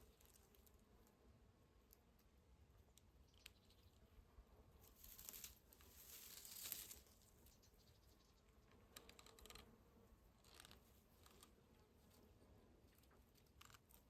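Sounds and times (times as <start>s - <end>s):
faint rustling of herb sprigs: 4.8s - 7.9s.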